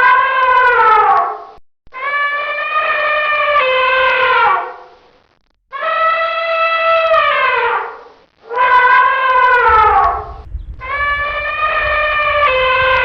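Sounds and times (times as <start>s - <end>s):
elephant trumpeting: 2.0s - 4.8s, 5.8s - 13.0s.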